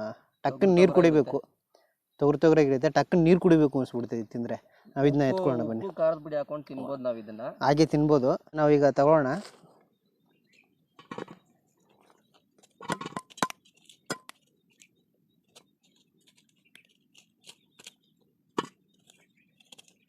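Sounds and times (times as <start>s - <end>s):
scooping inside hard fruit shell: 11.1s - 20.0s.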